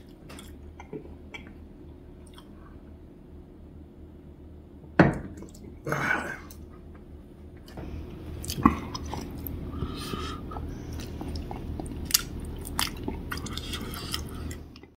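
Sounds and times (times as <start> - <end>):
man chewing and biting: 8.2 - 14.9.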